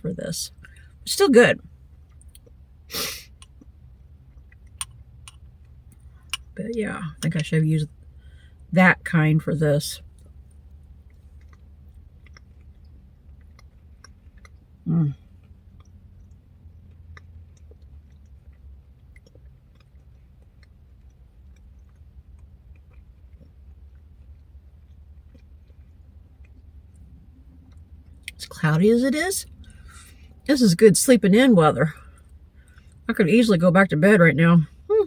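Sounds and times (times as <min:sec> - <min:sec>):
steady low hum: 0:00.0 - 0:35.0
wet chewing mouth clicks: 0:03.3 - 0:06.6, 0:10.0 - 0:28.4.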